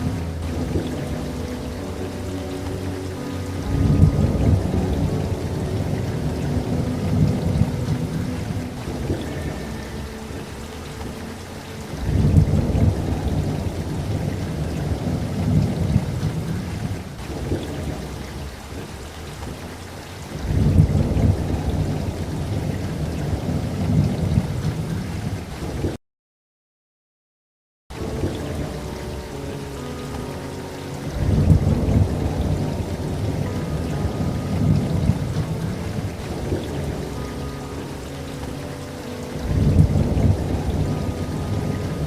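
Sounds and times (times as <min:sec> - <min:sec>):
steady rain: 0:00.0 - 0:26.0, 0:27.9 - 0:42.0
low rolls of thunder: 0:03.6 - 0:09.6, 0:20.3 - 0:26.0, 0:31.1 - 0:37.4, 0:39.4 - 0:42.0.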